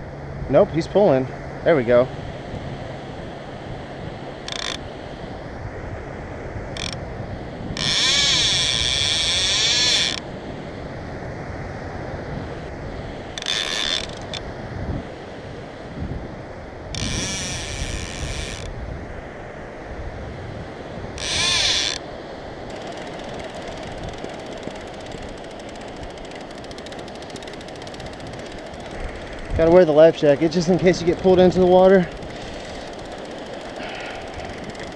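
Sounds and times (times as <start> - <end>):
wind and surf rushing: 0.0 - 34.9
fishing reel drag buzzing: 4.4 - 4.9, 6.7 - 7.0, 7.8 - 10.2, 13.3 - 14.4, 16.9 - 18.7, 21.2 - 22.0, 22.7 - 34.9.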